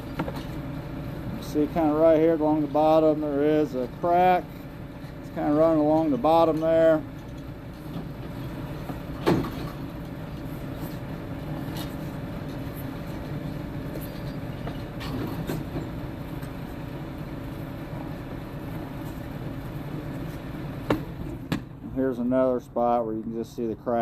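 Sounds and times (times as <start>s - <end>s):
machine hum and rumble: 0.0s - 24.0s.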